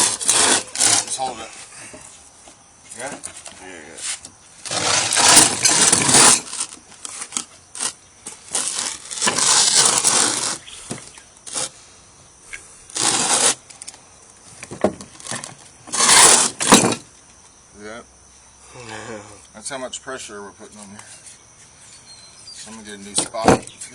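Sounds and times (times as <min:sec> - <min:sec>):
wood crunching and grinding: 0:00.0 - 0:01.4, 0:04.6 - 0:11.8, 0:12.9 - 0:13.7, 0:14.6 - 0:17.0.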